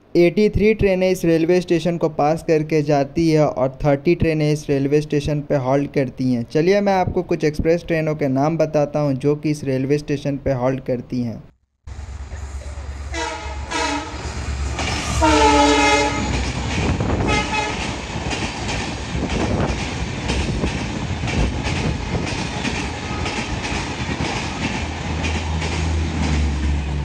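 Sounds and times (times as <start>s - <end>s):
train coaches rumbling past: 11.9s - 27.0s
train horn blasts: 13.1s - 14.3s, 15.0s - 16.4s, 17.2s - 17.8s.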